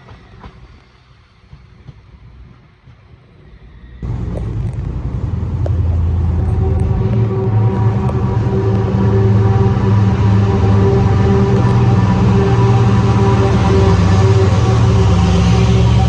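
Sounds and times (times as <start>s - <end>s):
train engine hum: 0.0s - 16.0s
low rumble: 4.0s - 16.0s.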